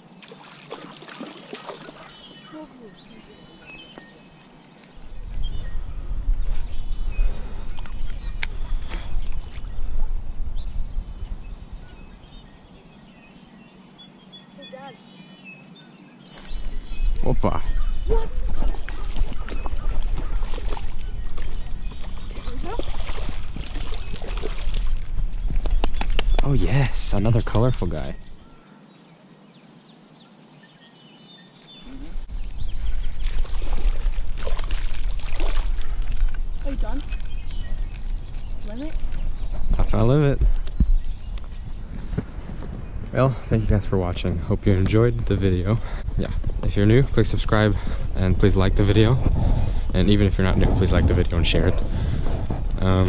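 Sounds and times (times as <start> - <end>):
faint bird chirps: 1.6 - 34.2
wind rumbling on microphone: 2.8 - 13.7, 16.3 - 28.6, 31.7 - 53.0.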